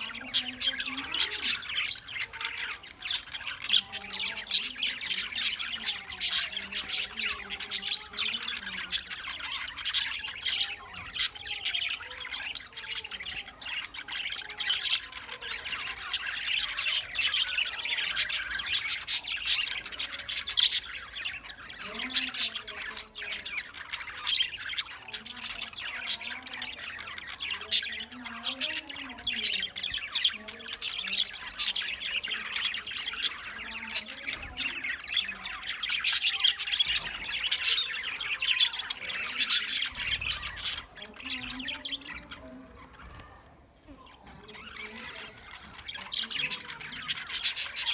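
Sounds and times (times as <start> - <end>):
parrots squawking and chirping: 0.0 - 47.9.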